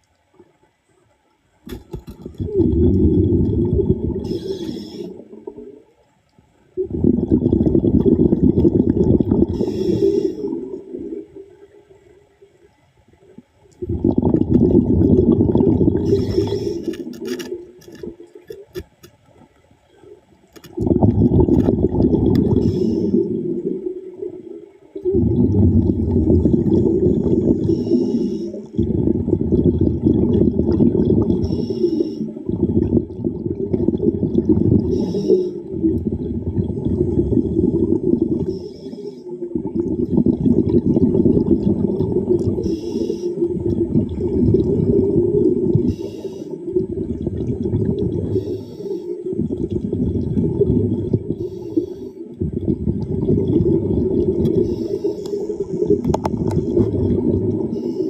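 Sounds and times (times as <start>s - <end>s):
exhaled bubbles gurgling: 1.7s - 58.0s
hissing regulator inhalations: 4.2s - 5.4s, 9.5s - 10.7s, 16.0s - 17.3s, 22.4s - 23.4s, 27.4s - 28.7s, 31.4s - 32.5s, 34.8s - 35.7s, 38.4s - 39.4s, 42.6s - 43.6s, 45.8s - 46.7s, 48.2s - 49.3s, 51.4s - 52.4s, 54.4s - 56.2s.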